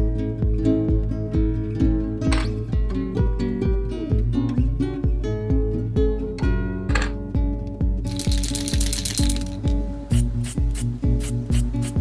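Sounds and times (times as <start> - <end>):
steady low beat: 9.7 - 12.0.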